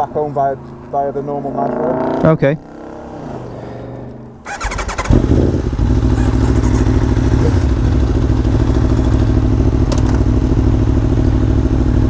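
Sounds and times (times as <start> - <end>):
motorcycle engine idling: 4.4 - 12.0
motorcycle engine cranking: 4.5 - 9.2.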